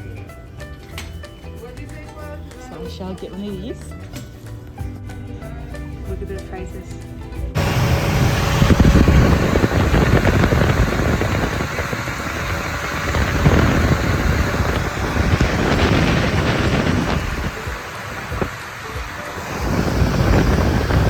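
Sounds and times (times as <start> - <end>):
wind buffeting microphone: 7.6 - 21.0.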